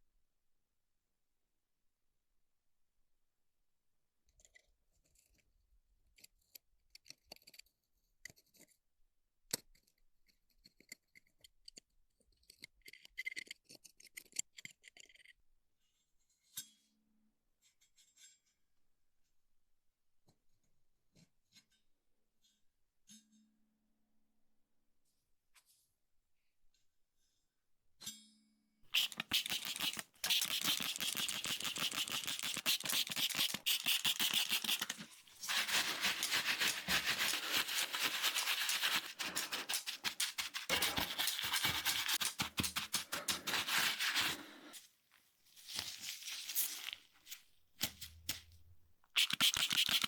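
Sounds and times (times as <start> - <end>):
rapid scraping strokes: 29.0 - 44.9, 49.2 - 50.0.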